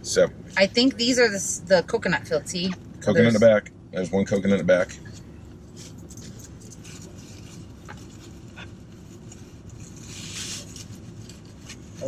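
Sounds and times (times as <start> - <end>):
low car interior hum: 0.0 - 12.0
rustling of pastries: 4.8 - 12.0.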